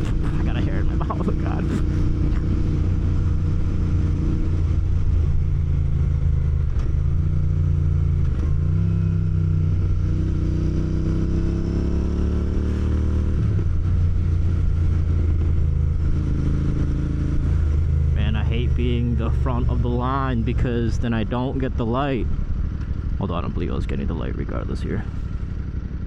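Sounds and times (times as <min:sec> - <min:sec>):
motorcycle engine revving: 0:00.0 - 0:20.6.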